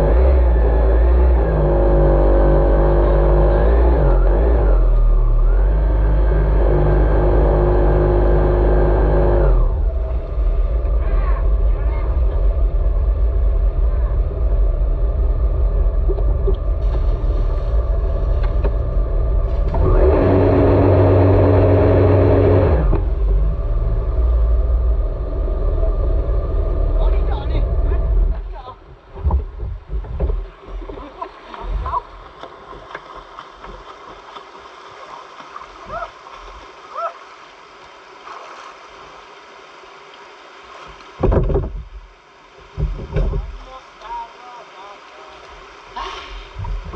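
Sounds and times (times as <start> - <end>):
loud steady engine note: 0.0 - 28.6
low rumble: 0.0 - 33.0, 45.8 - 46.9
jet ski engine running: 0.0 - 33.8.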